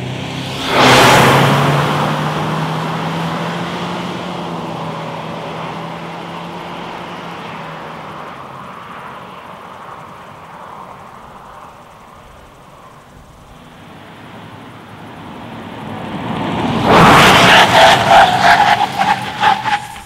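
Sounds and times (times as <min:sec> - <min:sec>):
car engine accelerating away: 0:00.0 - 0:08.1.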